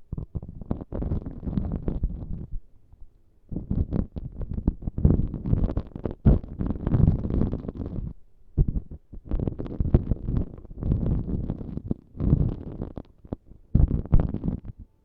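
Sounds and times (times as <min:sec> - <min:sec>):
crackly scratching on microphone: 0:00.0 - 0:02.6, 0:03.5 - 0:14.9.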